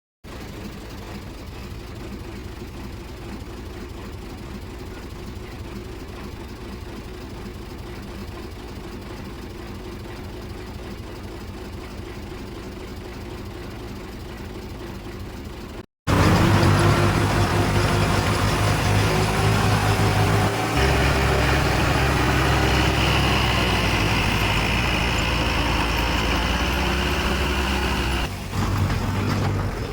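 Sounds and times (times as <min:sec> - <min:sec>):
heavy diesel engine running: 0:00.2 - 0:29.9
engine rising in pitch: 0:16.1 - 0:29.8.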